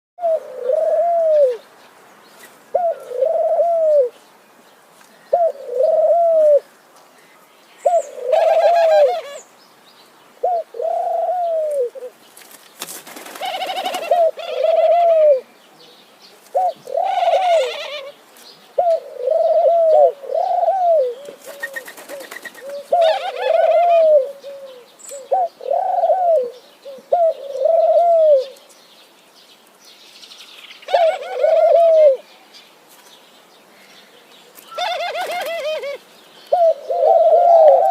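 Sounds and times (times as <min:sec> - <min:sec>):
doves cooing: 0:00.2 - 0:01.6, 0:02.7 - 0:04.2, 0:05.3 - 0:06.7, 0:07.8 - 0:09.4, 0:10.4 - 0:12.2, 0:13.1 - 0:15.5, 0:16.5 - 0:18.2, 0:18.8 - 0:28.6, 0:30.8 - 0:32.3, 0:34.6 - 0:37.9
higher bird chirping: 0:05.2 - 0:12.1.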